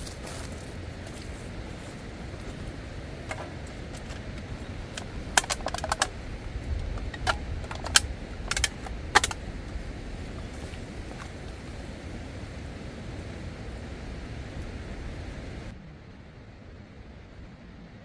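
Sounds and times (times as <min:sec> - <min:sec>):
steady rushing noise: 0:00.0 - 0:15.9
sharp clicks and clinks: 0:01.1 - 0:09.8.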